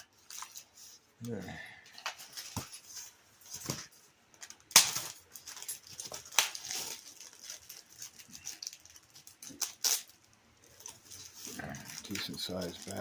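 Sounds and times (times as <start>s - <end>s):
plastic packaging crinkling: 4.4s - 13.0s.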